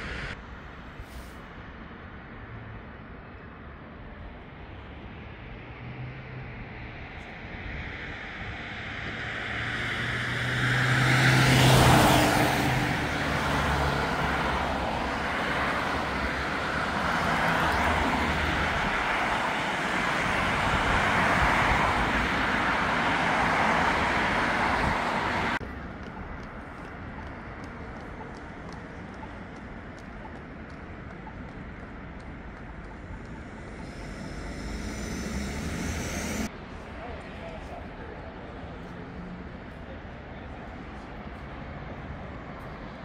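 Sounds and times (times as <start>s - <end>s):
traffic rumble: 0.0s - 43.0s
vehicle passing close: 31.6s - 36.5s.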